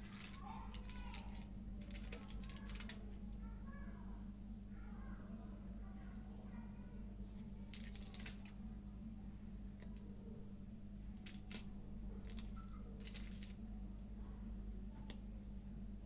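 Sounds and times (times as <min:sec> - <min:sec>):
chocolate bar crackling: 0:00.0 - 0:03.2, 0:07.4 - 0:08.6, 0:11.2 - 0:13.9, 0:15.0 - 0:15.6
steady low hum: 0:00.0 - 0:16.0.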